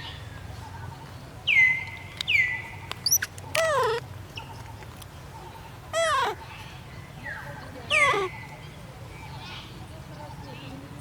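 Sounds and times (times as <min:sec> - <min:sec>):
macaque squeals: 0:03.0 - 0:04.0, 0:05.9 - 0:06.4, 0:07.9 - 0:08.4
macaque chirps: 0:03.0 - 0:04.6, 0:05.9 - 0:06.5, 0:07.9 - 0:08.5.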